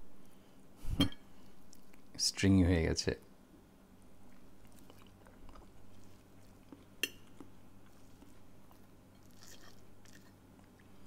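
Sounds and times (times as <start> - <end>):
man chewing: 4.2 - 11.0.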